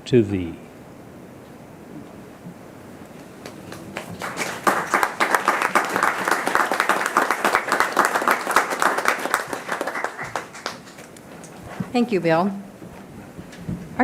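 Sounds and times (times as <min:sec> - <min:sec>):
audience applauding: 0:03.4 - 0:11.5.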